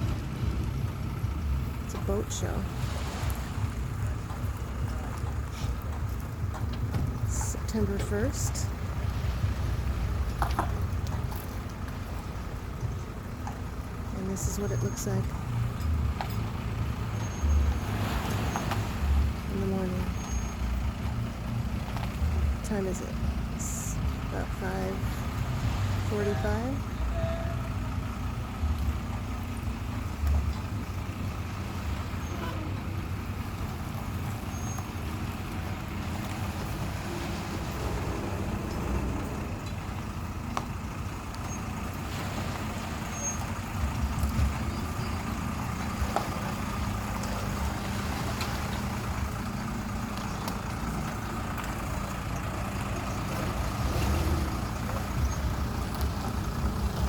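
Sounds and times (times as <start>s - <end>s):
vehicle engines idling: 0.0s - 57.0s
low thumps: 35.2s - 41.3s.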